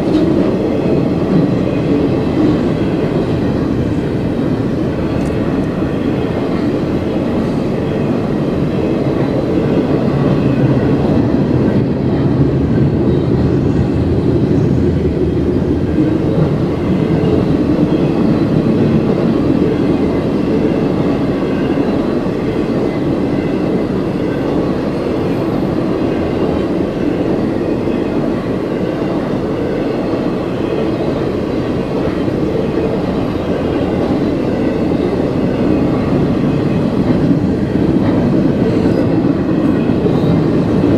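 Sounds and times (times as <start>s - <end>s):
freight train wheels rumbling on rail: 0.0s - 40.9s.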